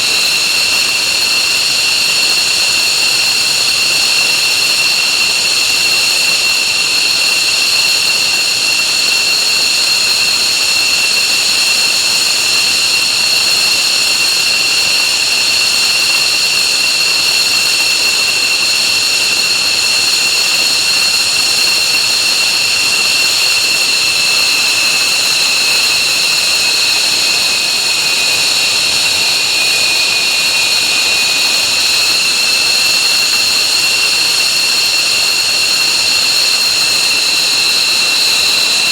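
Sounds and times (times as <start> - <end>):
jet engines whining: 18.2 - 36.0.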